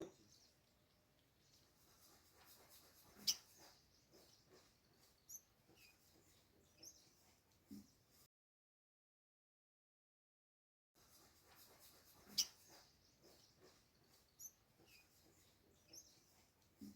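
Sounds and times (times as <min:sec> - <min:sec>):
bird chirping: 0:00.0 - 0:08.1, 0:11.7 - 0:16.4.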